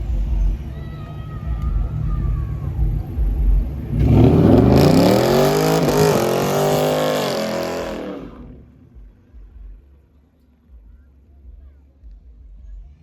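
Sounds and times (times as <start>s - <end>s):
car engine accelerating: 0.0s - 9.7s.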